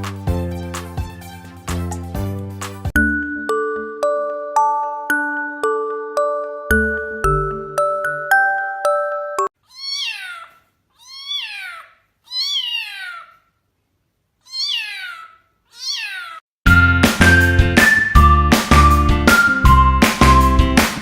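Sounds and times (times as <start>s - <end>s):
chiming mallet percussion music: 3.0s - 9.5s
cat meowing: 9.6s - 13.5s, 14.4s - 16.4s.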